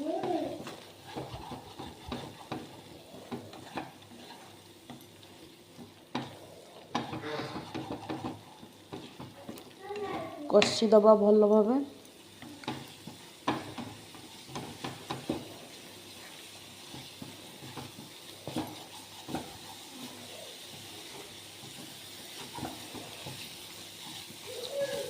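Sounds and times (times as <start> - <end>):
paste sizzling in hot oil: 0.0 - 10.8, 12.0 - 25.0
spatula scraping pan: 0.0 - 10.8, 12.4 - 25.0.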